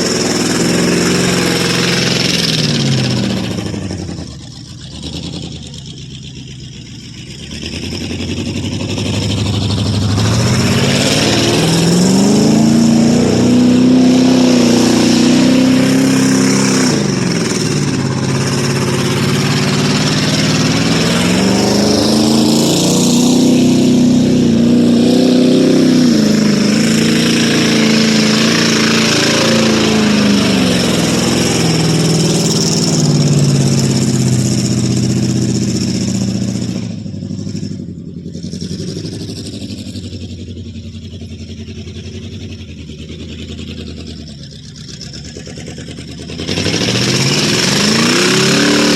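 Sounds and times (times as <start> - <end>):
truck engine revving hard: 0.0 - 48.9.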